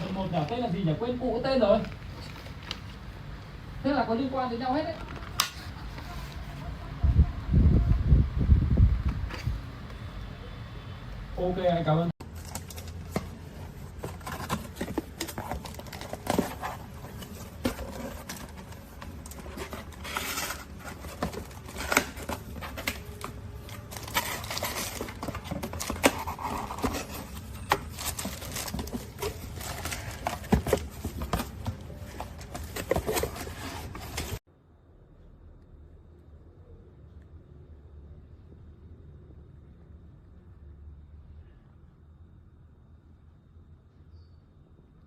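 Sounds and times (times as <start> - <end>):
packaging rustling: 12.2 - 34.4.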